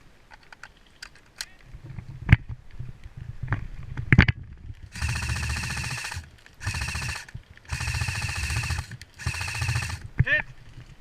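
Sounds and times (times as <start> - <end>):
airsoft rifle full-auto bursts: 4.9 - 10.1.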